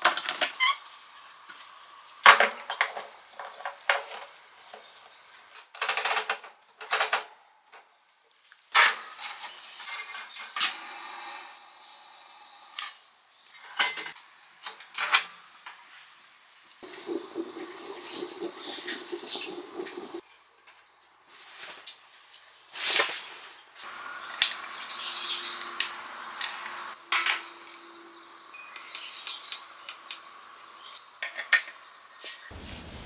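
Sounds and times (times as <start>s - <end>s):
rustling swishes: 32.5s - 33.0s.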